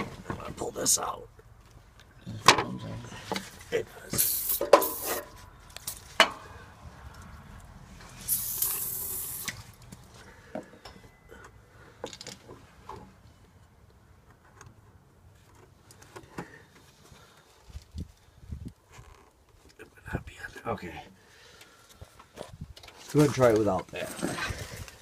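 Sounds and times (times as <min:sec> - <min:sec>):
aerosol can hissing: 0:04.2 - 0:05.2, 0:08.3 - 0:09.6.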